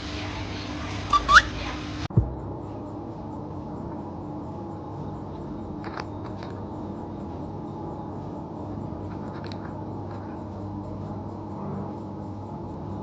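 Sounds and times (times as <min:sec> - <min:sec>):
low room hum: 0:00.0 - 0:13.0
faint clicks and scratches: 0:05.3 - 0:06.7, 0:09.0 - 0:12.1.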